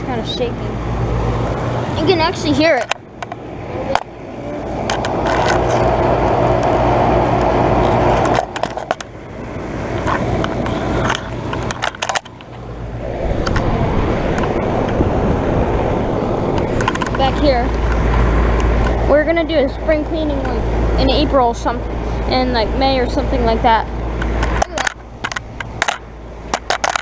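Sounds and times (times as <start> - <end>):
low compressor hum: 0.0 - 26.8
fan air rushing: 0.0 - 27.0
unit shaking: 9.8 - 19.1, 24.2 - 27.0.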